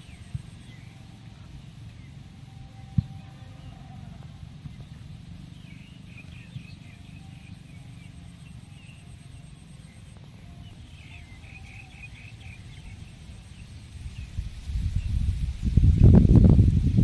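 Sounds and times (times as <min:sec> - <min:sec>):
faint high whine: 0:00.0 - 0:17.0
bird chirping: 0:04.6 - 0:15.4
wind rumble on microphone: 0:10.8 - 0:17.0.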